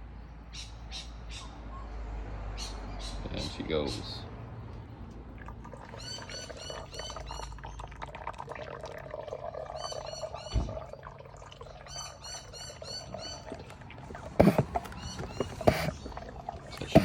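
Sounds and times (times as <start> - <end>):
oil pump gurgling and slurping: 4.8 - 17.0
bird chirping: 5.9 - 7.8, 9.8 - 17.0.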